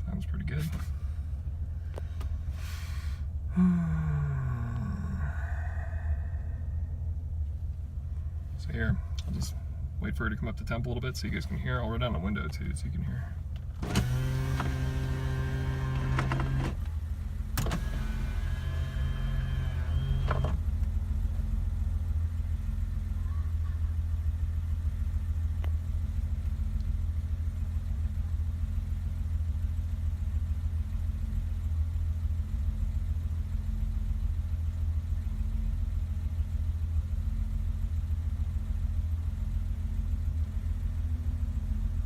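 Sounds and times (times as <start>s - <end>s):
car engine idling: 0.0s - 42.0s
power window motor whirring: 13.8s - 20.9s.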